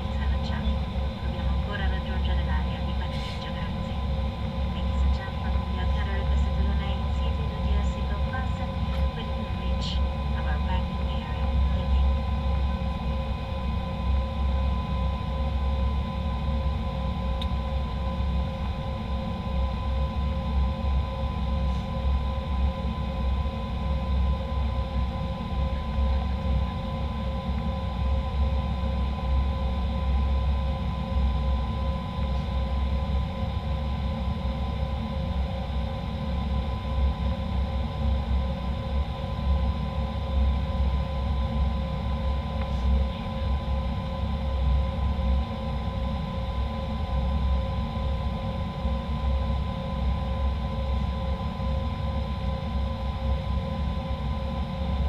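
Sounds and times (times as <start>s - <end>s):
airliner cabin rumble: 0.0s - 31.0s
engine whine: 0.0s - 55.0s.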